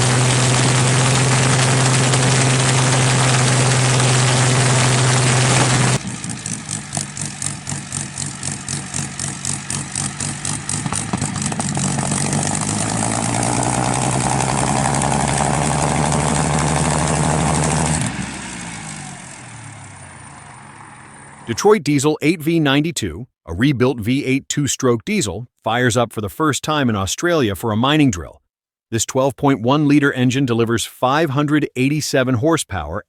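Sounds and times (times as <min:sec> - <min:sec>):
aero engine running: 0:00.0 - 0:21.6.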